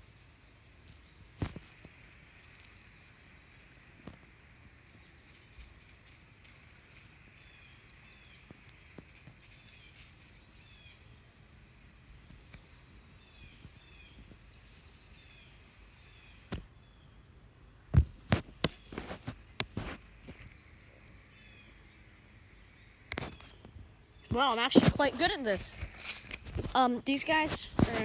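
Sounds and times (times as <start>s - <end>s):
small birds chirping: 0.0s - 28.0s
sharp knocks and rustles: 17.9s - 20.7s, 23.1s - 28.0s.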